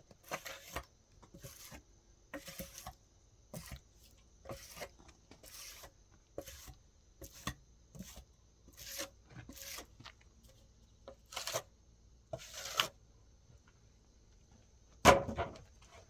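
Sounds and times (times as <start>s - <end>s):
scraping and rubbing strokes: 0.1s - 1.8s, 4.5s - 10.2s.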